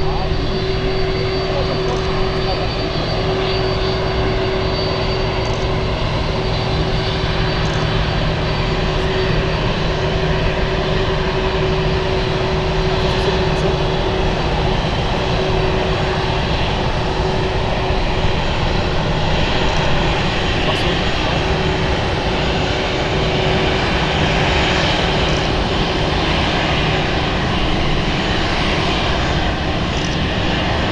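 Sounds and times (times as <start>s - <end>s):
jet engines running: 0.0s - 30.9s.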